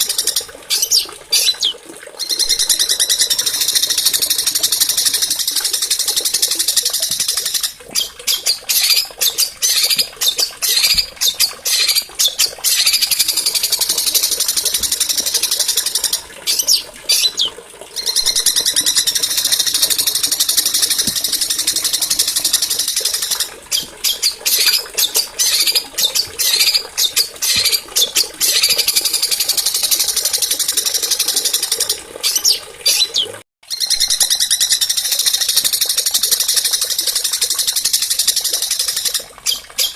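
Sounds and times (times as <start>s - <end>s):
songbirds singing high trills: 4.9s - 14.2s, 16.5s - 29.2s.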